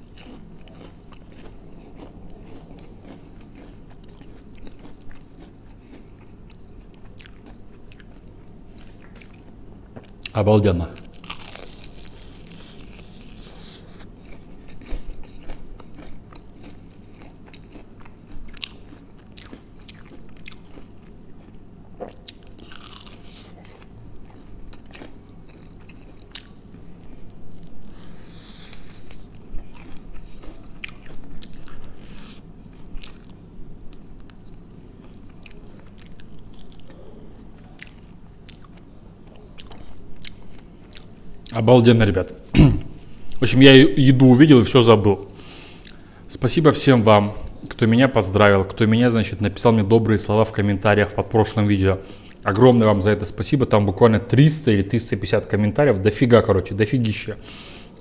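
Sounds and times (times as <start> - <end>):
man chewing crispy chicken: 0.0 - 10.3, 11.0 - 41.5, 45.4 - 46.2
steady low hum: 0.0 - 58.0.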